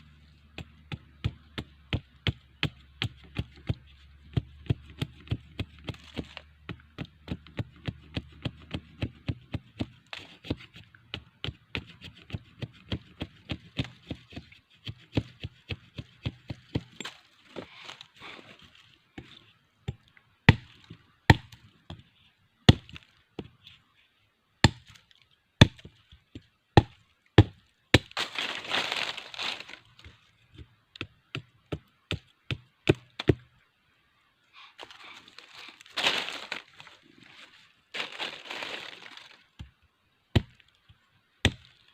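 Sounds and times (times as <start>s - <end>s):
blade chopping wood: 20.5s - 22.0s, 24.6s - 25.0s, 26.8s - 29.8s, 40.3s - 40.6s.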